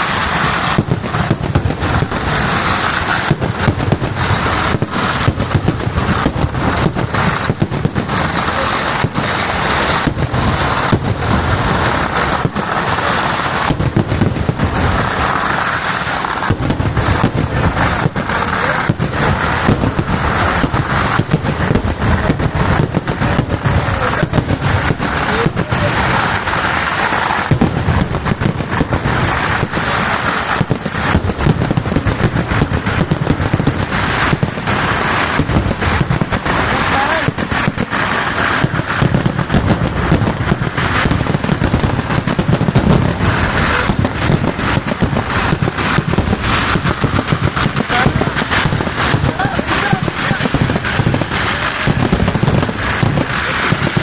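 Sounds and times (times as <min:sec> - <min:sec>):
continuous rumble: 0:00.0 - 0:54.0
firecracker bangs: 0:00.0 - 0:54.0.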